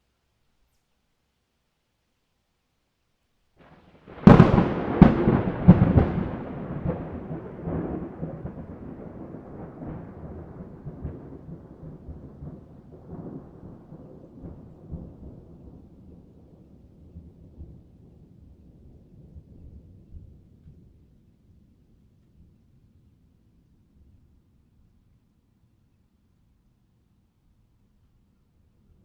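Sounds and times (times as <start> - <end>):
thunder cracks: 3.6 - 16.3
long thunder rumble: 3.6 - 21.1.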